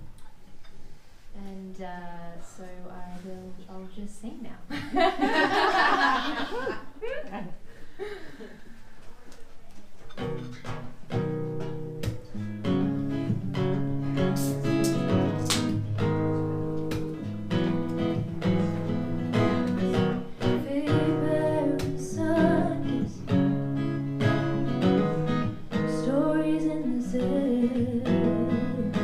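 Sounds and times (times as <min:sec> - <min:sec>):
acoustic guitar strumming: 0:10.1 - 0:29.0.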